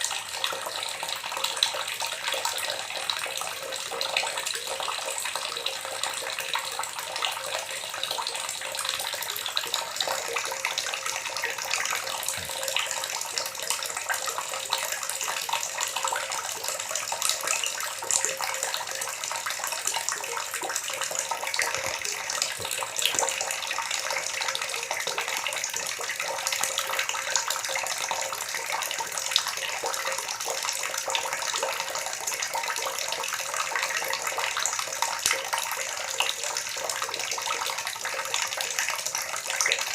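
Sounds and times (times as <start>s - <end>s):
water gurgling and splashing: 9.4s - 31.0s.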